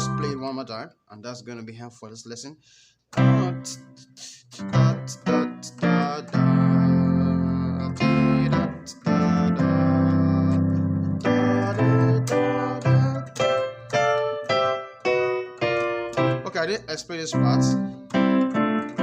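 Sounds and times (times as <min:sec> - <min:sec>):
gospel chords on keyboard: 0:00.0 - 0:00.6, 0:03.1 - 0:19.0.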